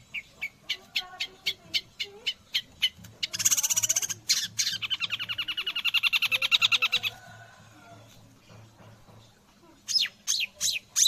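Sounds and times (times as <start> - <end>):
bird singing rapid chattering notes: 0.0 - 7.2, 9.8 - 11.0.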